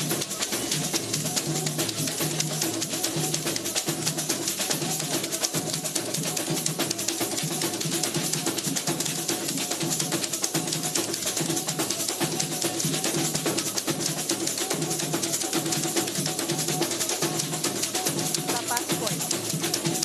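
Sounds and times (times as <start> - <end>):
samba percussion playing: 0.0 - 20.0
deep drum beat: 18.4 - 20.0.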